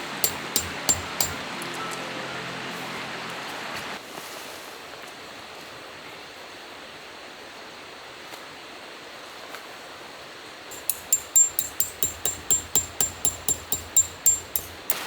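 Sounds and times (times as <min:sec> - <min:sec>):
music: 0:00.0 - 0:04.0
outdoor background hiss: 0:00.0 - 0:15.0.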